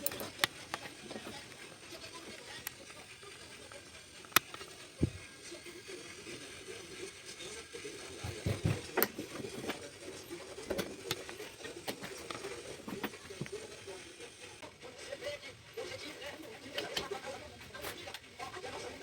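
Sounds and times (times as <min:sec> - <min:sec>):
hand tools clicking and knocking: 0:00.0 - 0:02.8, 0:08.2 - 0:13.7.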